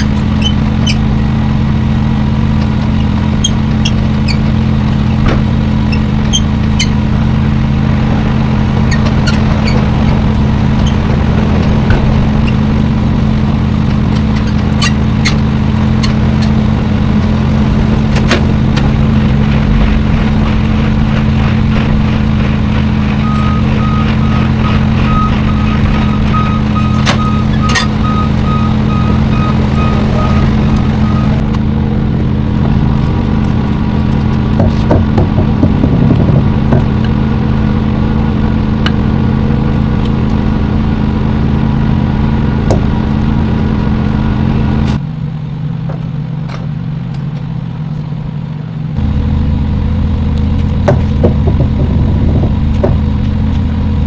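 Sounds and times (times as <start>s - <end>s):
truck diesel engine running: 0.0s - 54.0s
reversing alarm beeping: 23.2s - 31.4s.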